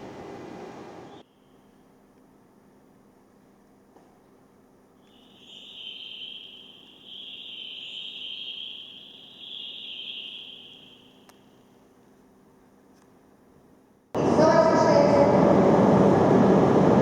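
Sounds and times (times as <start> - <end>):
insect trilling: 5.0 - 11.3.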